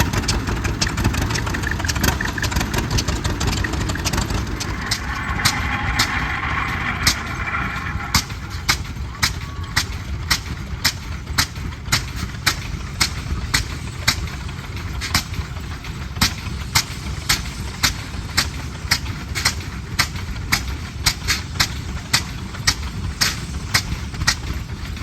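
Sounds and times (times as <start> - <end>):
tractor engine running slowly: 0.0 - 25.0.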